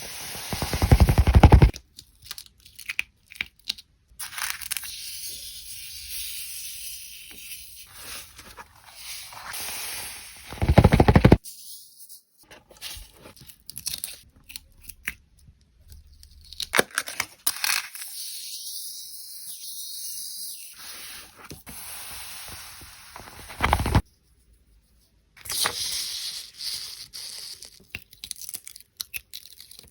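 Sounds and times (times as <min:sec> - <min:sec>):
paper and sand scraping: 0:00.0 - 0:01.8, 0:07.9 - 0:11.4
loud rapid rattle: 0:00.2 - 0:01.7, 0:10.5 - 0:11.4.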